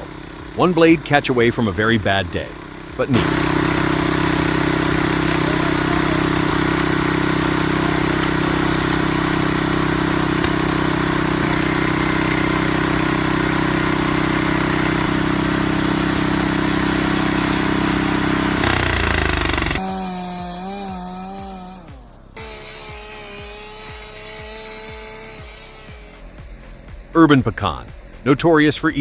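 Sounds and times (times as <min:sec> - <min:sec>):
sawmill engine running: 0:00.0 - 0:29.0.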